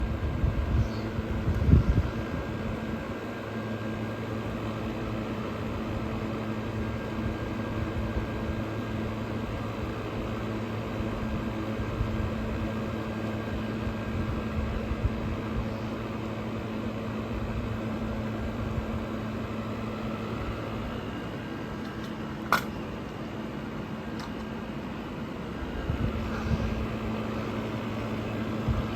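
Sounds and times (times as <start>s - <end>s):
air conditioner compressor hum: 0.0s - 28.9s
air conditioner fan rushing: 0.0s - 28.9s.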